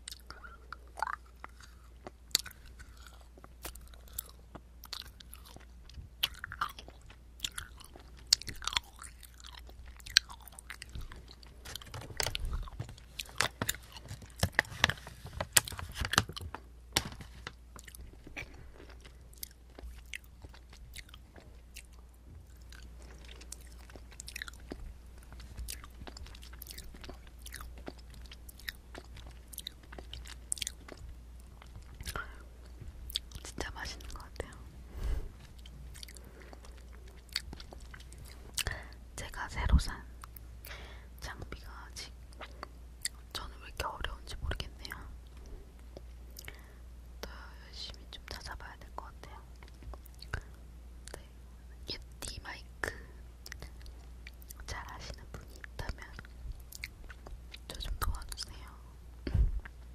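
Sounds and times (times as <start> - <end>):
person chewing: 0.0 - 14.9, 17.8 - 39.0, 49.6 - 51.2, 52.9 - 58.8.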